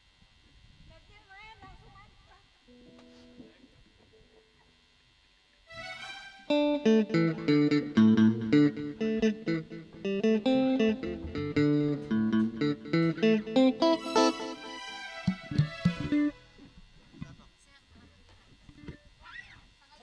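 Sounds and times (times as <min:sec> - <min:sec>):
amplified guitar picking fast notes: 0:06.4 - 0:17.3
bass guitar: 0:06.6 - 0:16.4.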